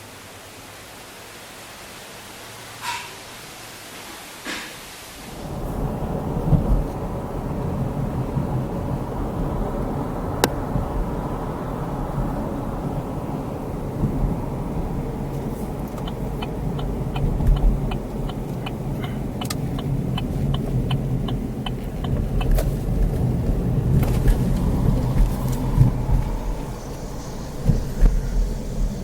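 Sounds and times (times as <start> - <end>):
road and engine rumble: 4.5 - 29.0
light even ticking: 15.3 - 29.0.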